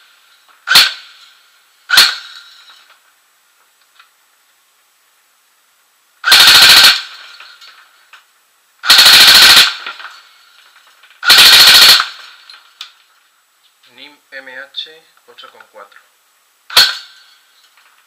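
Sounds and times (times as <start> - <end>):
airsoft gun firing rapid bursts: 0.7 - 1.0, 6.2 - 7.2, 8.8 - 10.0, 11.2 - 12.2.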